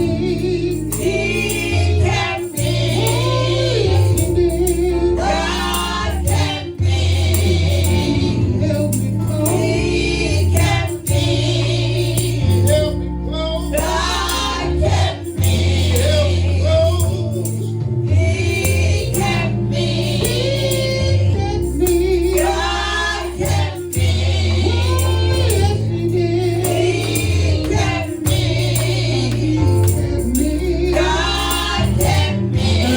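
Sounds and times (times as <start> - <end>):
percussion beat: 0.0 - 13.0, 13.6 - 32.9
people singing: 0.0 - 32.9
sustained bass notes: 0.0 - 32.9.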